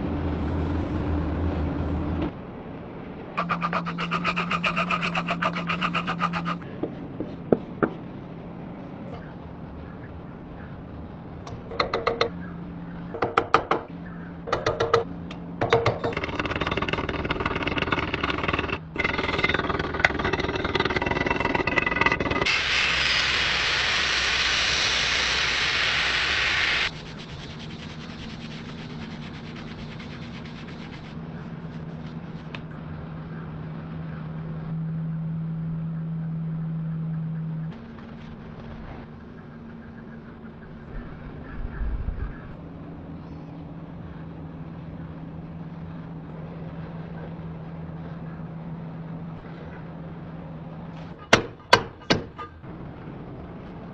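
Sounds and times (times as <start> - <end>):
low machine hum: 0.0 - 53.9
loud steady hiss: 22.5 - 30.1.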